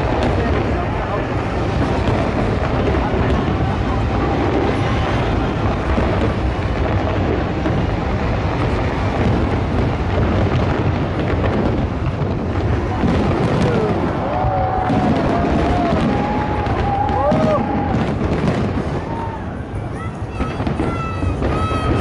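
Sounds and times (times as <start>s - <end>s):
crowd noise: 0.0s - 22.0s
fireworks booming rumble: 0.0s - 22.0s.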